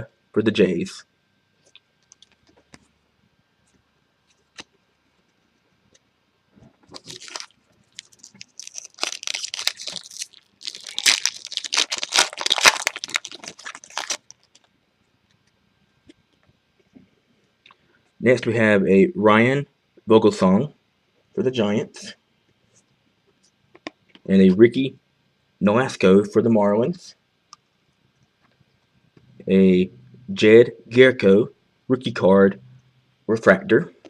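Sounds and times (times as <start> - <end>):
wrapper torn and crinkled: 6.9 - 14.7.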